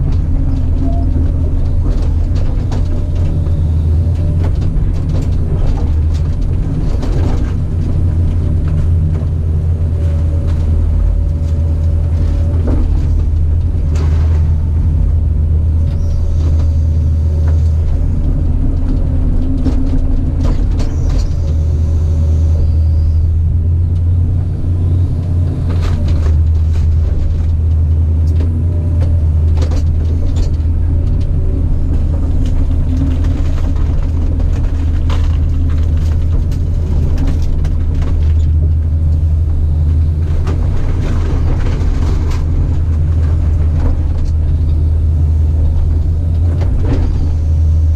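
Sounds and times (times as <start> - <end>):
knocks and clanks: 0.0 - 21.9
track loader diesel engine running: 0.0 - 47.9.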